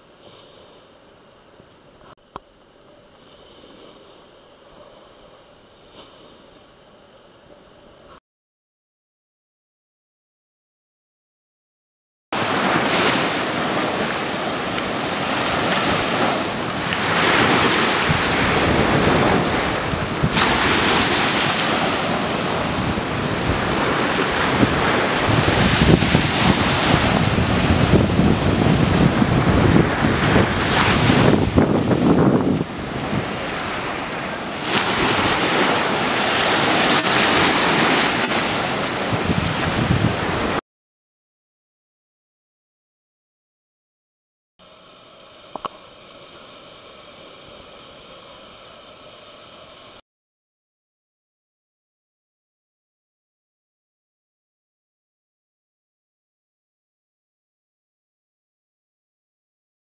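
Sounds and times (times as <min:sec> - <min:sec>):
ocean waves and surf: 0:12.4 - 0:40.6
wind buffeting microphone: 0:12.4 - 0:40.6.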